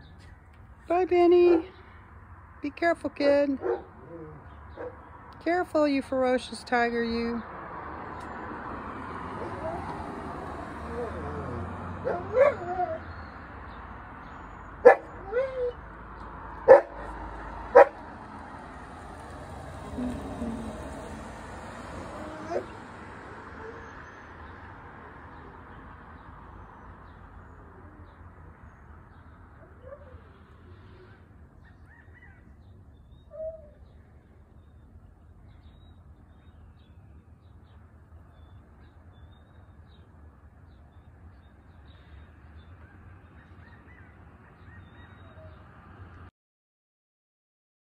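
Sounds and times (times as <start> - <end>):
distant bird calls: 27.0 - 45.8.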